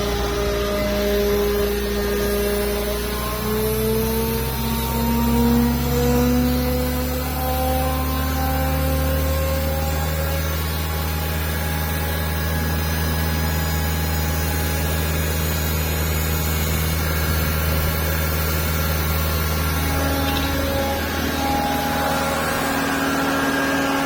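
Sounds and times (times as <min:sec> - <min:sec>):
engine running low hum: 0:00.0 - 0:24.0
faint rising high tones: 0:18.6 - 0:24.0.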